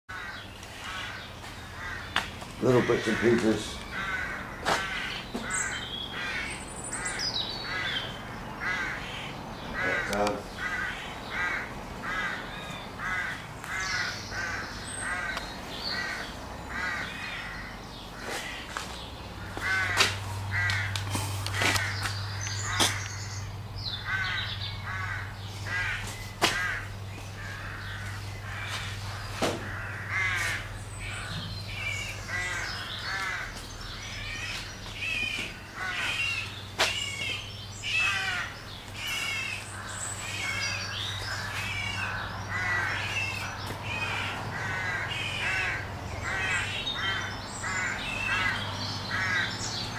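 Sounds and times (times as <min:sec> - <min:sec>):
bird harsh calls: 0:00.1 - 0:49.9
sharp knocks: 0:29.4 - 0:29.7.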